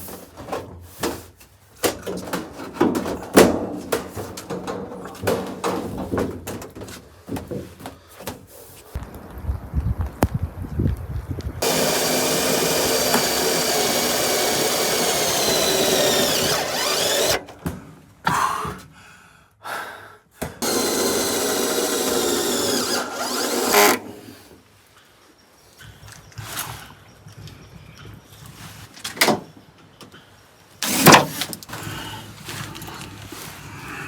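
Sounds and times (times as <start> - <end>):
power tool motor running: 11.6 - 17.4, 20.6 - 24.2, 30.8 - 31.2.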